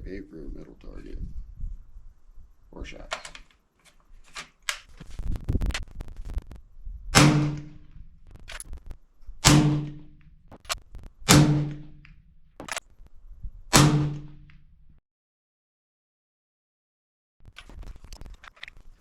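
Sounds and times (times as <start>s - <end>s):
suppressed rifle shots: 7.1s - 8.6s, 9.4s - 12.8s, 13.7s - 14.6s.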